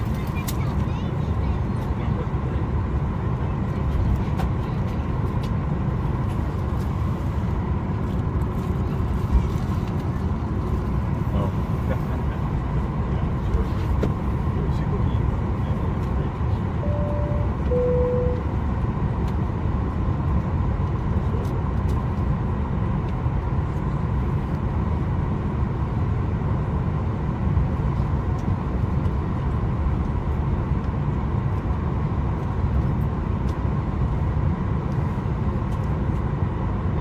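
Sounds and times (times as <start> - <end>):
aircraft cabin rumble: 0.0 - 37.0
two-note cabin chime: 16.8 - 18.5.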